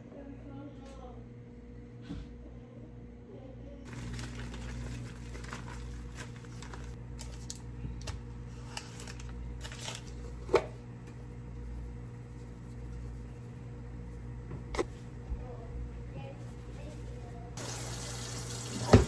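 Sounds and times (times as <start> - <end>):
steady low hum: 5.9 - 18.5.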